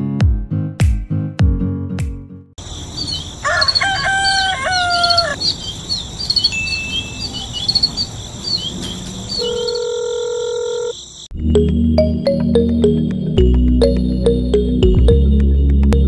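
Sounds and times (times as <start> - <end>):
high insect drone: 2.6 - 11.3
rooster crowing: 2.7 - 5.7
electronic ringtone: 9.4 - 10.9, 11.5 - 15.4.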